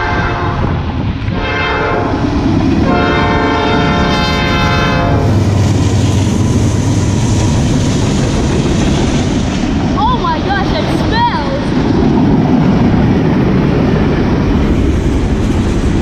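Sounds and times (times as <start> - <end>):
locomotive air horn blasts: 0.0 - 2.2, 2.8 - 5.5
diesel locomotives rumbling past: 0.0 - 16.0.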